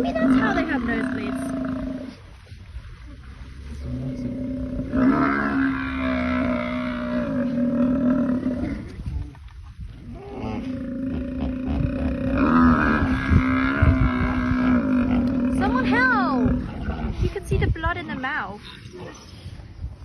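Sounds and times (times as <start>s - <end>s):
large animal bellowing roars: 0.0s - 2.3s, 3.8s - 9.2s, 10.0s - 17.3s.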